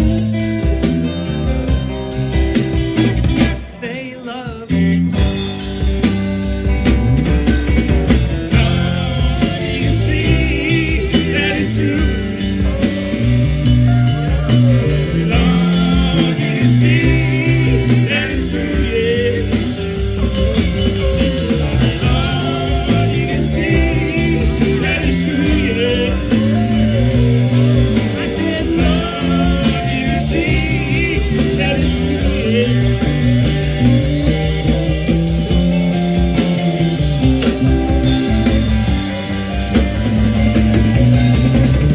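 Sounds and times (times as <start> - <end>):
person singing: 0.0 - 5.7, 7.2 - 34.3
bass line: 0.0 - 41.9
electric guitar: 0.0 - 41.9.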